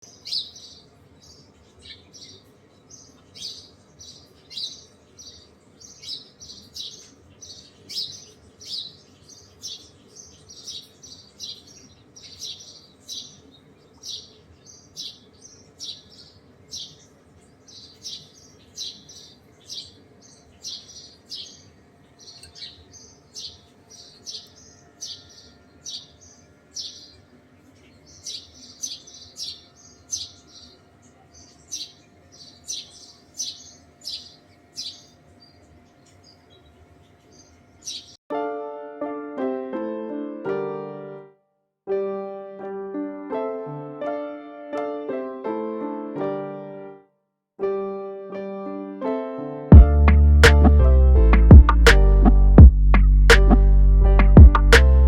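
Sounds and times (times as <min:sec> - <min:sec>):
small birds chirping: 0:00.0 - 0:38.2.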